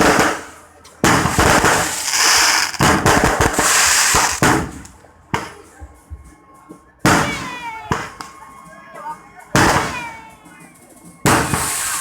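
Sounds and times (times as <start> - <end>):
fireworks crackling bangs: 0.0 - 5.8, 7.0 - 8.4, 9.4 - 12.0
faint firework pops: 0.0 - 6.2, 7.0 - 8.4, 11.2 - 12.0.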